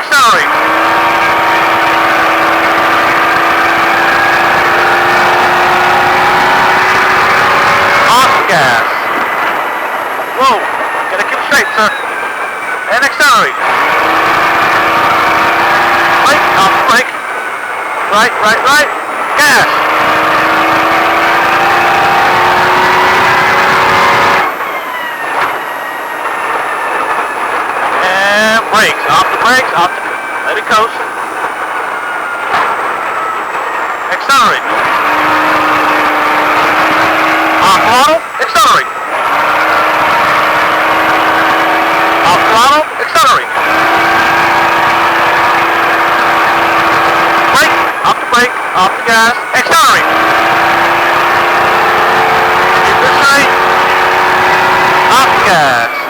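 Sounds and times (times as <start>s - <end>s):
truck engine accelerating: 0.0s - 56.0s.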